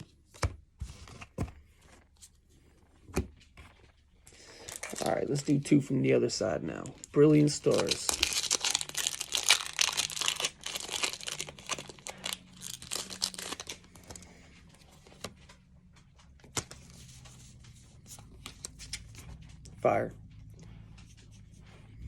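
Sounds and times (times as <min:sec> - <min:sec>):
foil wrapper tearing and crinkling: 0:07.2 - 0:13.9.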